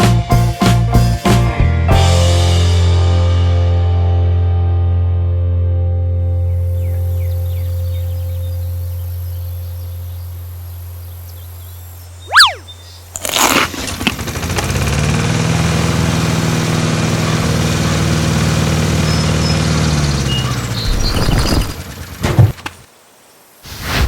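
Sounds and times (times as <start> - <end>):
sharp swoosh: 12.3 - 12.7
tractor engine running: 13.8 - 22.8.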